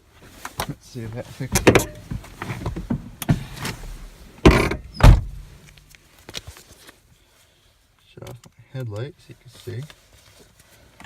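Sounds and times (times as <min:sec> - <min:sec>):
car door shutting: 0:01.5 - 0:05.4.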